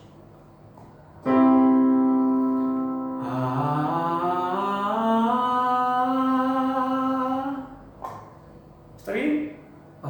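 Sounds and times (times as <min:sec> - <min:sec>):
held keyboard note: 0:01.2 - 0:04.2
man singing gliding upward: 0:03.1 - 0:07.8.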